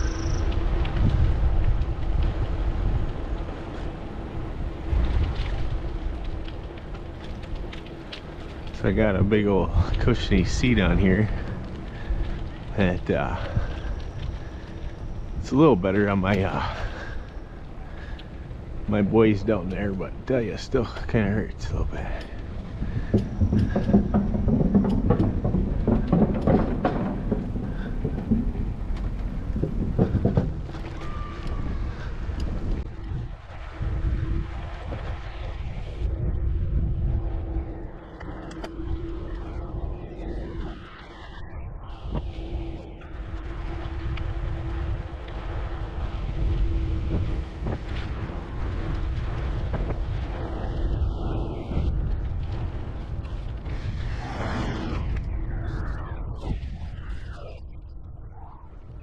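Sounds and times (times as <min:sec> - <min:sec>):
bicycle tyres rumbling on road: 0:00.0 - 0:59.0
wind buffeting microphone: 0:00.0 - 0:59.0
bike rattling and knocking: 0:22.2 - 0:33.1.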